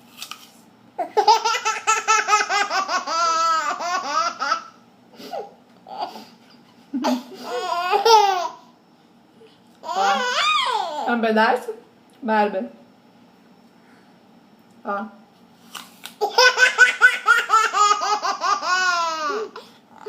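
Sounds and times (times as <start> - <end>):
baby laughing: 1.0 - 4.8, 7.0 - 8.7, 9.8 - 11.1, 16.2 - 19.6.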